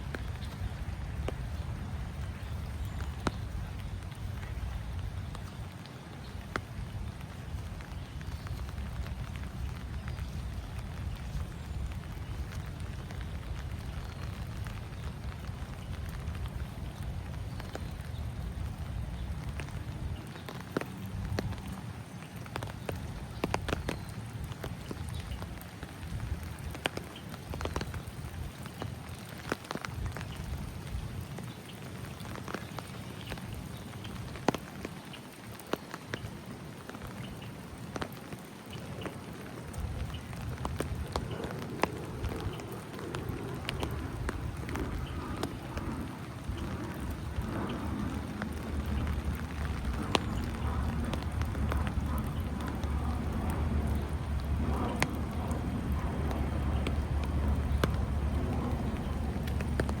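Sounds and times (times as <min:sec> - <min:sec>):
rain falling: 0:00.0 - 1:00.0
sharp raindrops striking close: 0:00.0 - 1:00.0.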